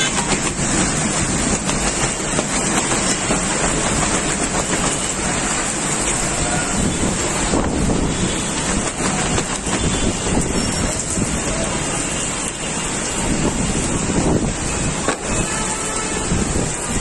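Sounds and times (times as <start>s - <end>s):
storm wind and rain: 0.0s - 17.0s
wind gusts buffeting microphone: 6.0s - 11.8s, 13.2s - 15.4s, 16.2s - 17.0s.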